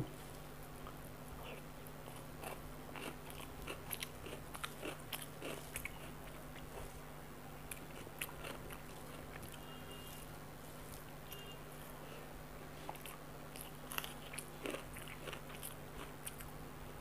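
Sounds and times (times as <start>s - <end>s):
faint steady hum: 0.0s - 17.0s
mouth chewing with wet clicks: 0.8s - 6.9s, 7.6s - 10.3s, 12.8s - 16.5s.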